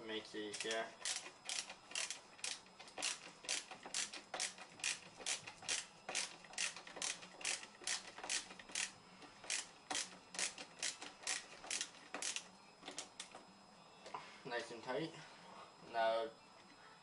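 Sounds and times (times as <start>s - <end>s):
ratcheting screwdriver clicking: 0.6s - 8.9s, 9.5s - 13.3s.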